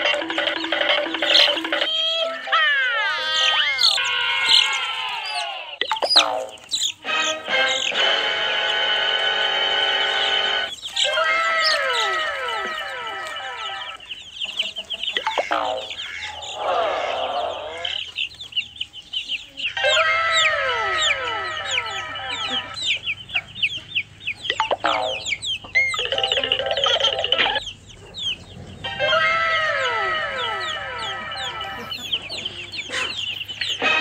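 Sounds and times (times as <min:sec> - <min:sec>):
chickens clucking and peeping: 0:00.0 - 0:34.0.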